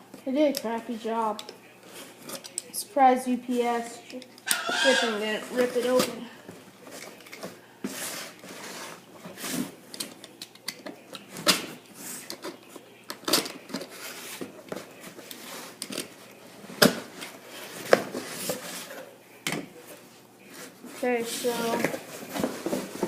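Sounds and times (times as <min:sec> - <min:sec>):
packaging rustling and scraping: 0:04.5 - 0:06.2, 0:06.8 - 0:10.1, 0:11.2 - 0:19.2, 0:20.0 - 0:23.0.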